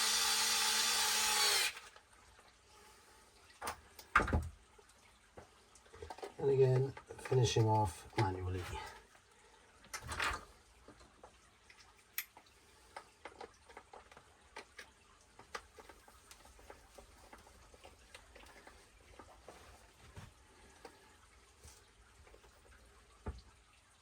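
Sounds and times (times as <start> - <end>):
rustling handling sound: 15.4 - 20.4.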